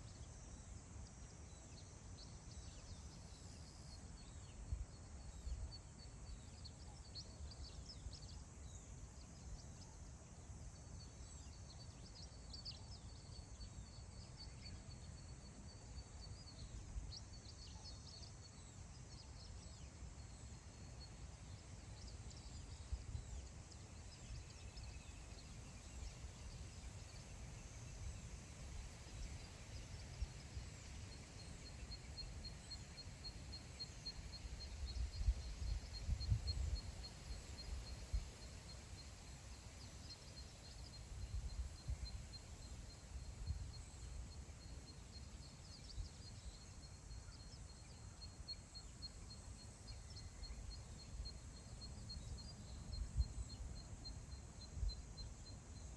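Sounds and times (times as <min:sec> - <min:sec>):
wind rumble on microphone: 0:24.1 - 0:38.7, 0:40.7 - 0:44.4, 0:50.1 - 0:55.3.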